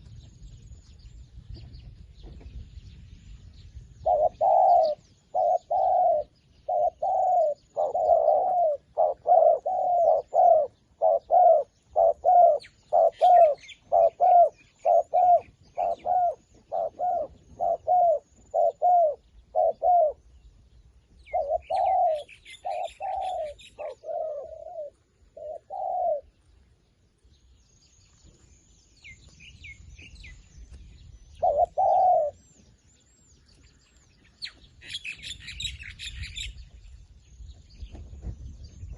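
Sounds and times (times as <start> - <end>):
small birds chirping: 0.0 - 38.9
dove cooing: 4.0 - 20.3, 21.2 - 26.3, 31.4 - 32.5.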